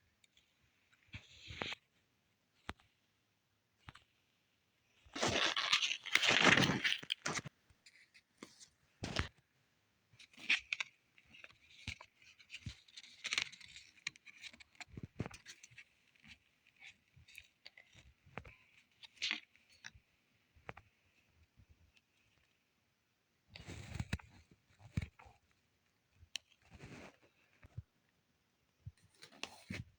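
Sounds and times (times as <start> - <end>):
packaging crinkling and tearing: 5.2 - 7.5.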